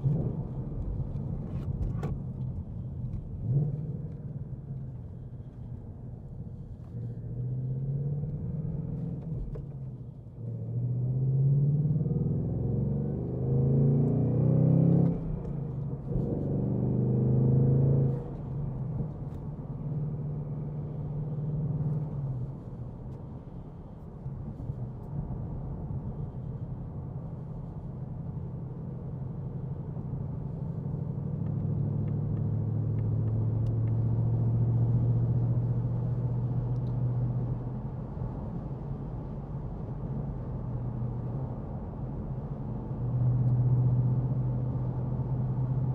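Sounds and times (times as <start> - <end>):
car engine accelerating hard: 10.4 - 22.7.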